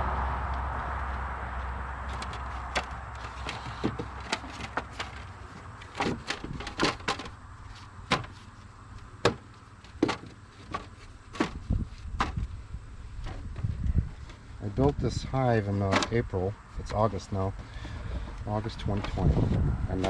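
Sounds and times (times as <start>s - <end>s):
passing car: 0.0s - 4.2s
wooden frames knocking: 2.1s - 7.4s, 9.2s - 12.5s.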